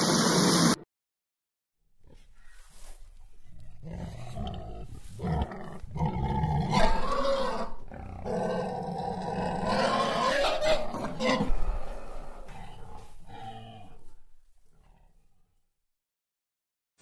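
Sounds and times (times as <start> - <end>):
lion roaring: 3.6 - 14.1.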